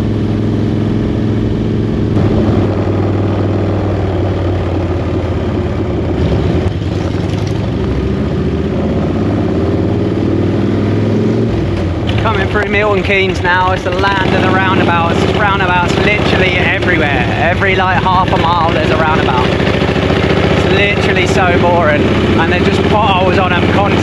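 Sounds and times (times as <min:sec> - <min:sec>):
motorcycle engine running: 0:00.0 - 0:24.0
rushing air: 0:00.8 - 0:12.2.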